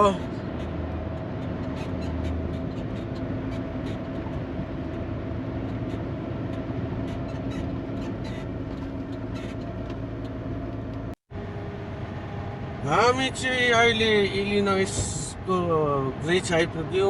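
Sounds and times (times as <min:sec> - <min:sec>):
road noise: 0:00.0 - 0:17.0
truck engine drone: 0:00.0 - 0:17.0.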